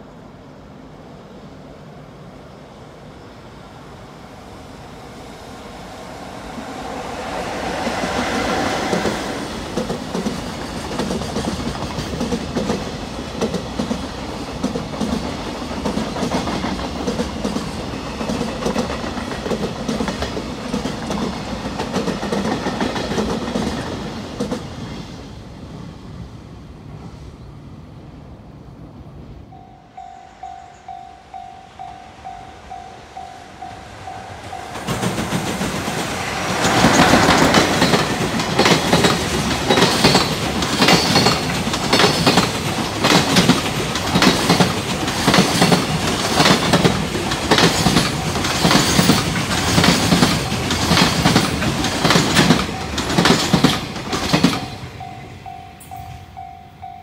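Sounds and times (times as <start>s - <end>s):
train wheels clattering over rail joints: 8.7s - 24.8s, 34.7s - 55.1s
level-crossing warning bell: 29.5s - 35.4s, 47.5s - 57.0s.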